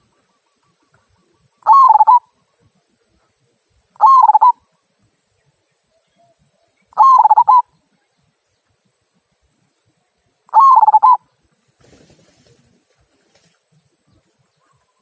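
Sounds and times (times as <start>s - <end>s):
dove cooing: 1.2s - 2.3s, 4.0s - 4.6s, 6.9s - 7.7s, 10.5s - 11.3s.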